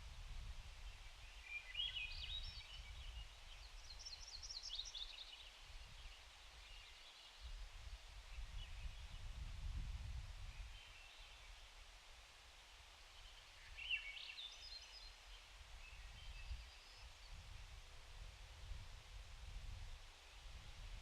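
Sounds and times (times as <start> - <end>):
small birds chirping: 1.0 - 7.4.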